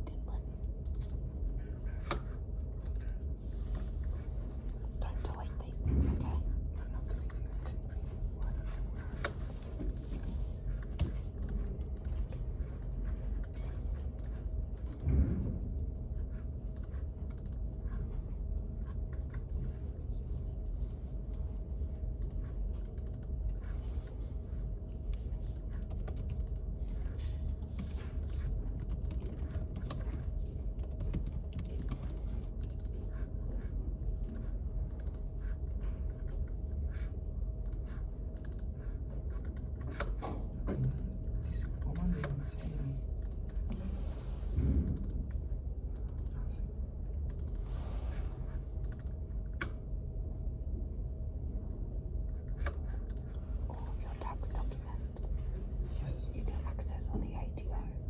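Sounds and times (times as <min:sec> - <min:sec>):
low steady hum: 0:00.0 - 0:58.0
computer keyboard typing: 0:22.2 - 0:23.4, 0:25.4 - 0:33.2, 0:37.6 - 0:38.8.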